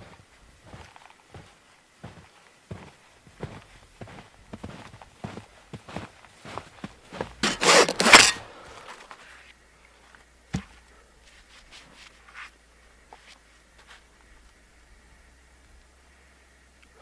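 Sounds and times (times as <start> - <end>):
loud rushing scraping sounds: 7.4 - 8.5.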